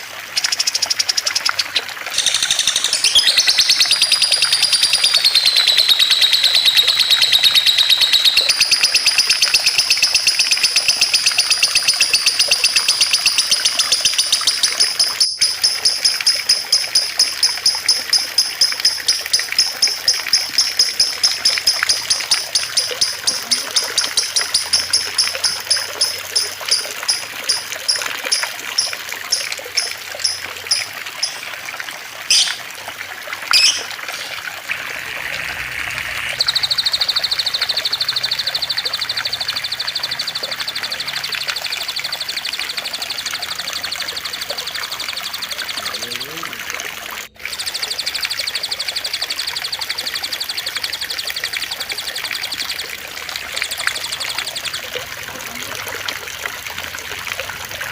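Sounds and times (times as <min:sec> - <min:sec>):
water trickling: 0:00.0 - 0:57.9
songbird trilling: 0:00.5 - 0:31.5, 0:32.3 - 0:32.6, 0:33.5 - 0:34.3.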